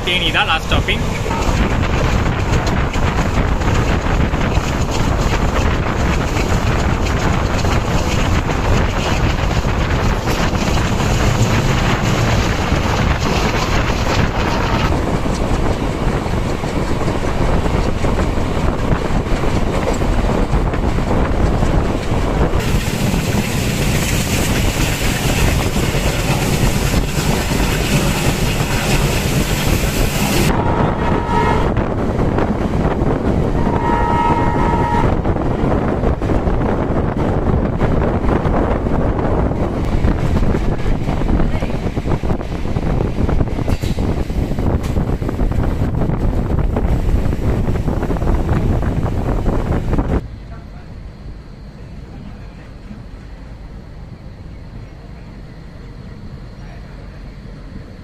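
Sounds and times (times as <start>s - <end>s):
wind rushing over microphone: 0.0s - 50.4s
diesel train rumbling: 0.0s - 58.0s
train horn: 30.5s - 32.0s, 33.5s - 35.4s.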